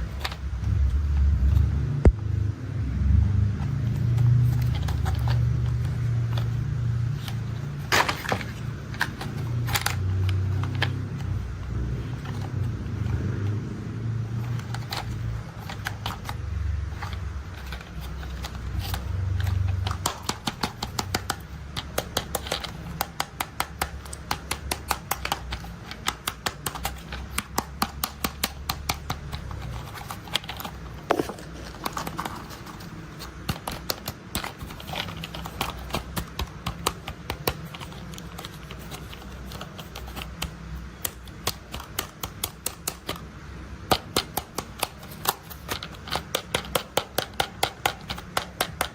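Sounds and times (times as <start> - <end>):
quick irregular clicks and taps: 14.4 - 48.9.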